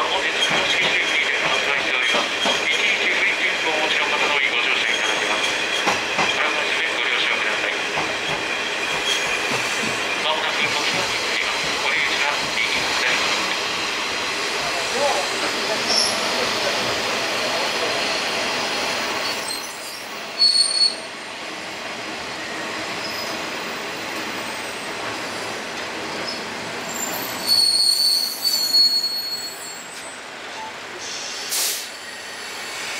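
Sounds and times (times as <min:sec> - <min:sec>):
diesel railcar running: 0:00.0 - 0:32.9
high-pitched wheel squeal: 0:19.2 - 0:21.0, 0:26.3 - 0:30.2.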